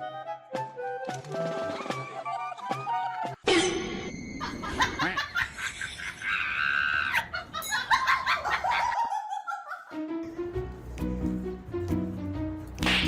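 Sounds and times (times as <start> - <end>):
people laughing: 4.4 - 10.0
falling cry: 6.0 - 7.4.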